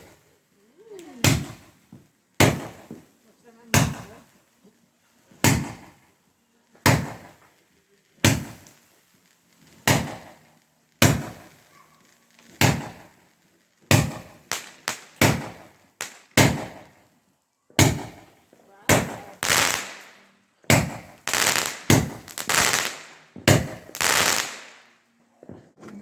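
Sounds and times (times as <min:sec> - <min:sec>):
firework bangs with echo: 0:01.2 - 0:03.1, 0:03.7 - 0:04.4, 0:05.4 - 0:06.1, 0:06.8 - 0:07.5, 0:08.2 - 0:08.8, 0:09.8 - 0:11.6, 0:12.5 - 0:13.2, 0:13.9 - 0:17.0, 0:17.8 - 0:24.9.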